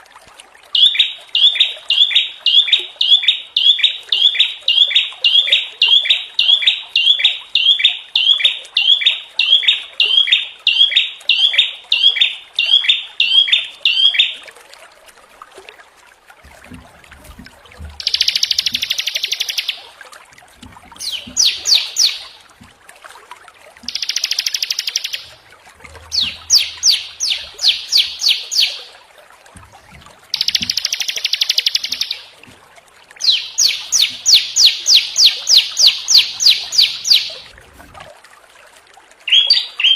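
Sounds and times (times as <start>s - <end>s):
songbirds chirping: 0.8s - 14.4s, 17.8s - 19.9s, 20.6s - 22.6s, 23.8s - 32.6s, 33.2s - 37.5s, 39.3s - 39.9s
harsh bird trilling: 18.0s - 19.8s, 21.0s - 22.5s, 23.9s - 25.4s, 26.0s - 28.9s, 30.3s - 32.3s, 33.2s - 37.4s, 39.3s - 39.9s.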